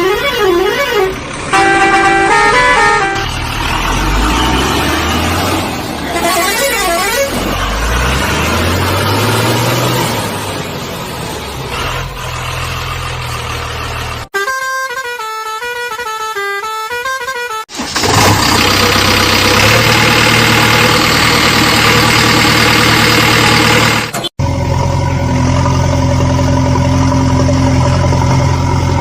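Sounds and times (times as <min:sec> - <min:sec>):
vehicle horn notes: 0:00.0 - 0:03.4, 0:06.1 - 0:07.4, 0:14.3 - 0:17.6
warbling horn-like tone: 0:00.0 - 0:03.4
low engine revving: 0:00.1 - 0:14.3, 0:18.0 - 0:29.0.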